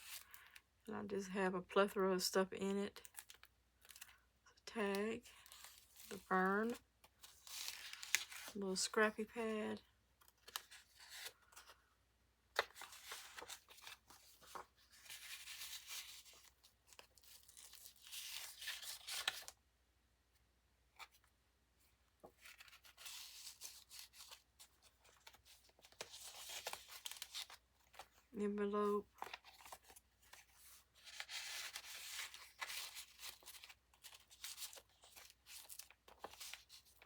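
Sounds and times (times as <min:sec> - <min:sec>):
paper rustling and sliding: 0:12.6 - 0:19.5, 0:29.2 - 0:37.0.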